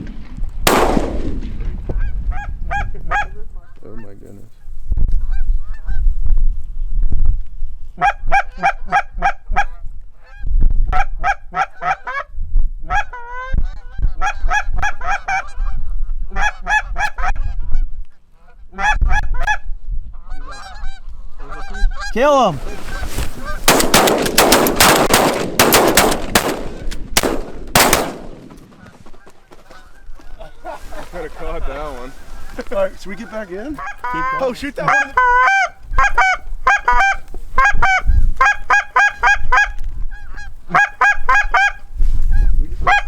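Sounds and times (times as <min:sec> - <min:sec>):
shotgun blasts: 0:00.0 - 0:01.8, 0:23.6 - 0:28.7
geese honking: 0:20.2 - 0:24.5, 0:28.1 - 0:41.8.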